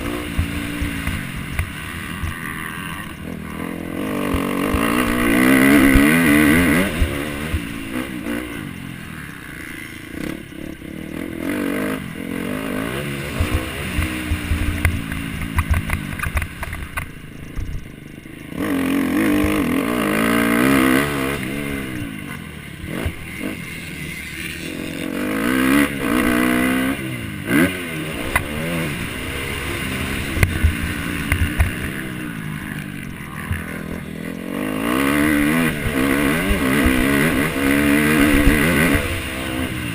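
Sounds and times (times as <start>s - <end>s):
motocross bike engine revving: 0.0s - 39.9s
sharp knocks and clatter: 13.4s - 17.9s.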